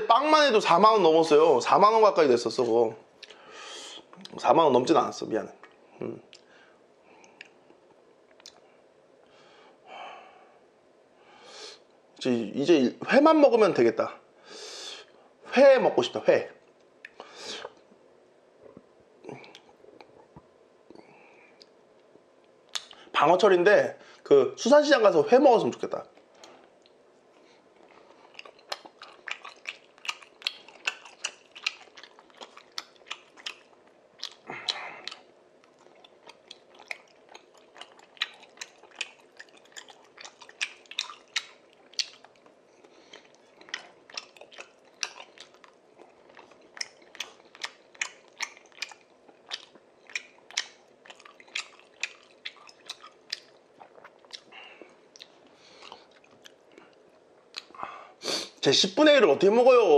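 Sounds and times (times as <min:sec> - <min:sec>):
man chewing with wet clicks: 0:03.1 - 0:03.4, 0:07.2 - 0:08.7, 0:16.6 - 0:17.9, 0:18.7 - 0:23.1, 0:26.1 - 0:57.8.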